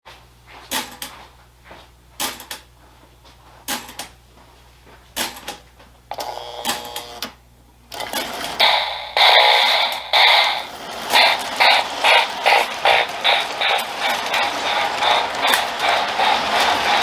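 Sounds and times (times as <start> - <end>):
toy train wheels clicking on track: 5.2 - 7.3, 7.9 - 17.0.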